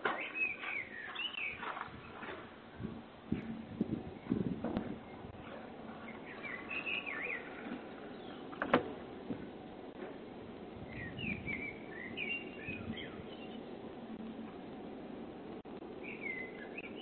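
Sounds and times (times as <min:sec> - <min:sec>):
small birds twittering: 0:00.0 - 0:08.8, 0:10.7 - 0:14.2, 0:15.6 - 0:17.0.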